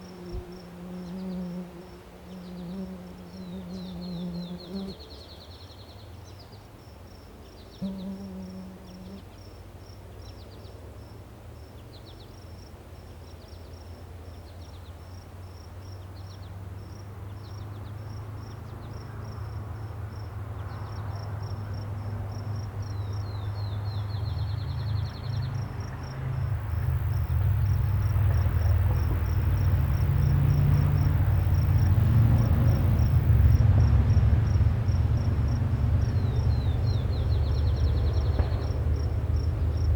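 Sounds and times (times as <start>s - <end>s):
insect chirping: 7.8s - 10.0s, 24.9s - 38.4s, 39.0s - 39.9s.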